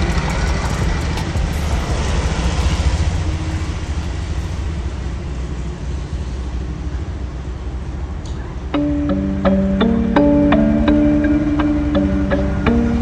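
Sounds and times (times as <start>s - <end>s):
vehicle engine rumble: 0.0s - 8.7s
road noise: 0.0s - 13.0s.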